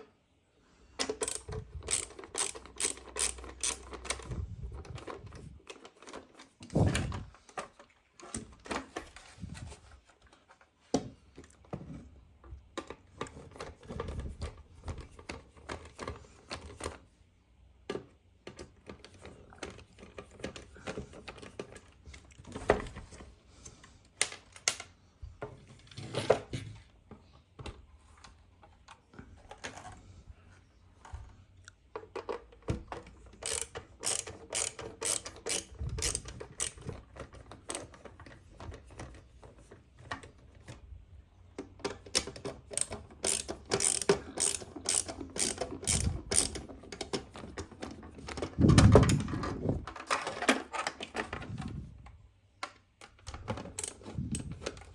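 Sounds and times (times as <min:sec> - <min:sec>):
rapid small ratcheting clicks: 0:01.2 - 0:04.3, 0:33.4 - 0:36.8, 0:42.8 - 0:46.7, 0:53.8 - 0:54.5
clicks and knocks of handling: 0:31.0 - 0:40.9.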